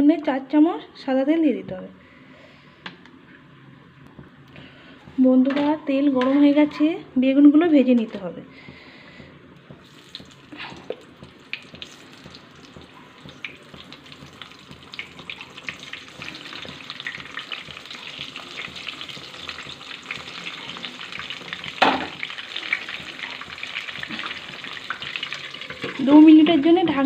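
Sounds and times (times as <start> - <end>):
vegetable slices sizzling in oil: 11.4 - 26.8.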